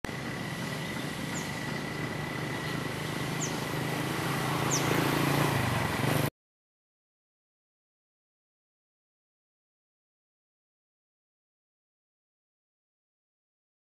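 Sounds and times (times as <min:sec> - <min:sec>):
motor vehicle humming: 0:00.1 - 0:06.3
bird chirps: 0:00.3 - 0:03.9, 0:04.7 - 0:05.1.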